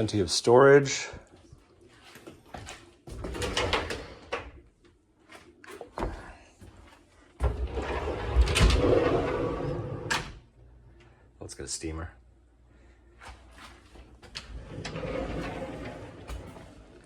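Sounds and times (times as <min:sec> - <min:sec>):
drawers sliding and rumbling: 0:07.4 - 0:10.4, 0:14.2 - 0:17.0.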